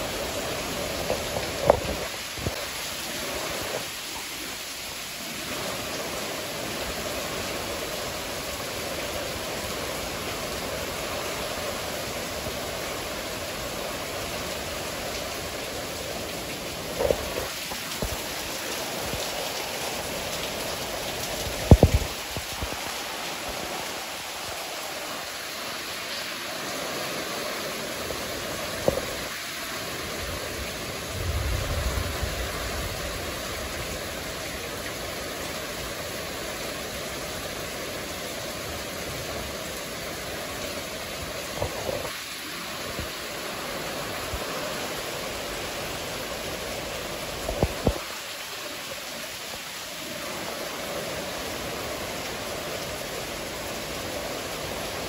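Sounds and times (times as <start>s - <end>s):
steady rain: 0.0s - 55.0s
thunder rumble: 31.1s - 33.7s.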